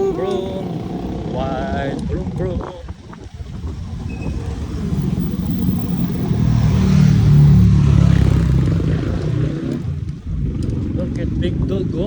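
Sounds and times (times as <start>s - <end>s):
car driving past: 3.5s - 10.7s.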